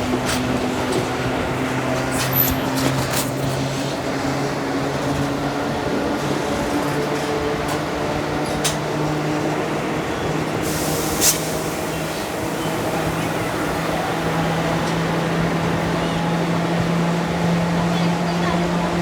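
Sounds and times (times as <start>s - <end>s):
train hum and rumble: 0.0s - 19.0s
short hiss: 10.6s - 12.3s.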